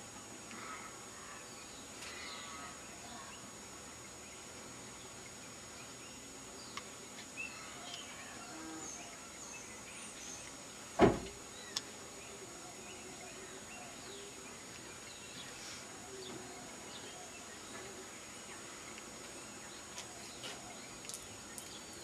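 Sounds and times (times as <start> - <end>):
faint bird chirps: 0.6 - 3.5
sharp knock: 11.0 - 11.3.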